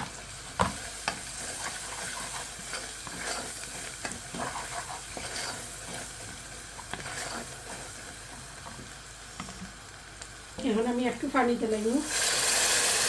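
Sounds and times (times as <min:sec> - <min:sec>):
food sizzling in hot oil: 0:00.0 - 0:13.0
utensil scraping and knocking pan: 0:00.6 - 0:07.9.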